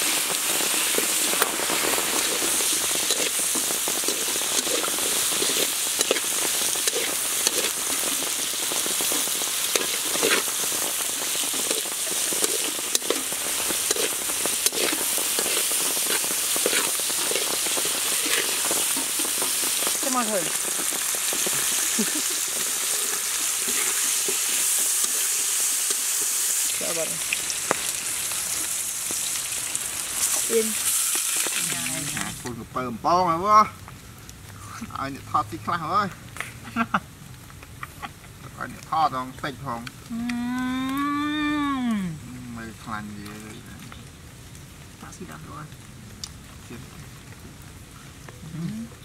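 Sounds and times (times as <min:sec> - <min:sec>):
food sizzling in a wok: 0:00.0 - 0:48.3
metal spatula scraping a pan: 0:11.5 - 0:19.6, 0:22.5 - 0:26.0.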